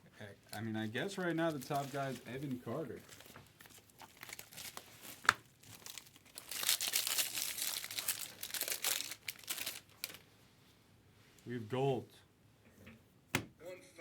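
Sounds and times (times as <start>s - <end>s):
card pack wrapper crinkling: 1.2s - 10.2s.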